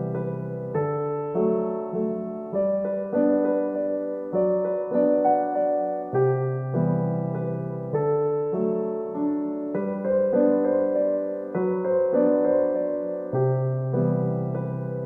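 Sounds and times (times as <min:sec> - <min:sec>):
solo piano piece: 0:00.0 - 0:15.0.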